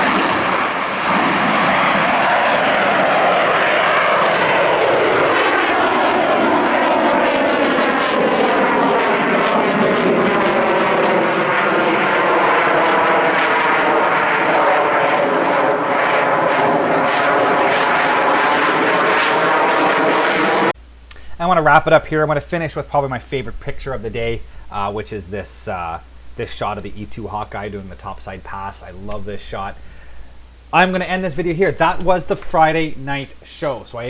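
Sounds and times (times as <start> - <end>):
jet engines roaring: 0.0 - 20.8, 30.8 - 34.0.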